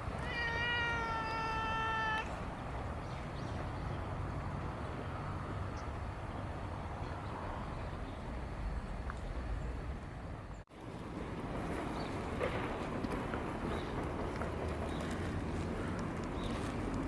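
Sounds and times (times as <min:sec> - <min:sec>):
cat meowing: 0:00.2 - 0:02.3.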